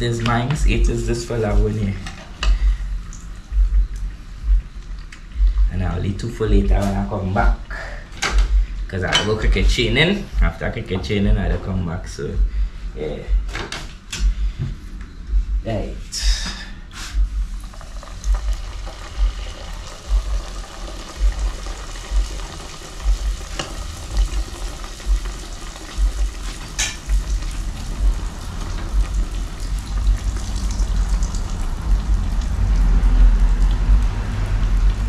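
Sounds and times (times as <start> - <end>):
low thuds: 2.4 - 7.7, 8.3 - 17.6, 23.0 - 35.0
dough sizzling in hot oil: 17.0 - 35.0.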